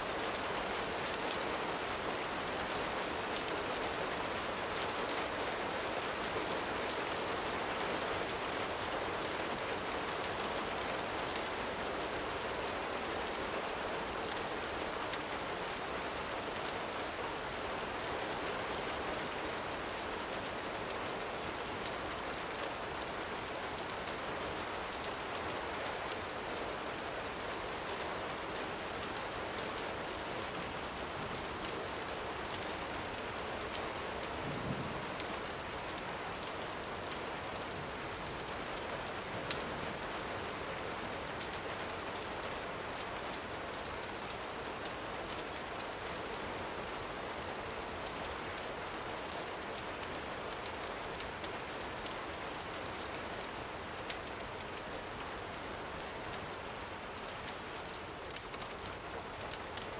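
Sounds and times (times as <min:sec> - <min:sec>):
gentle rain falling: 0:00.0 - 0:59.9.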